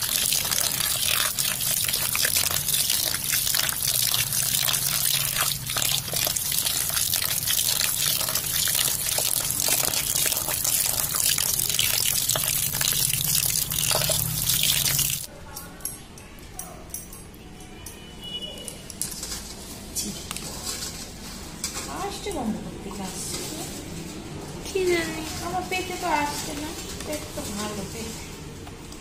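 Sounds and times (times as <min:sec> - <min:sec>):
water pouring and splashing: 0:00.0 - 0:15.3.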